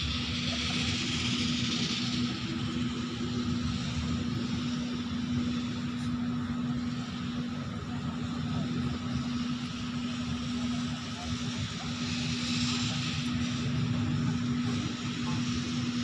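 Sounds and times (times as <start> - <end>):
machinery drone: 0.0 - 16.0.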